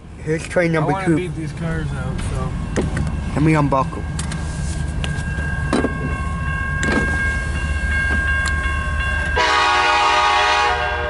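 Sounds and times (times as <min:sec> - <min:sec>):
locomotive air horn: 0:09.4 - 0:11.0.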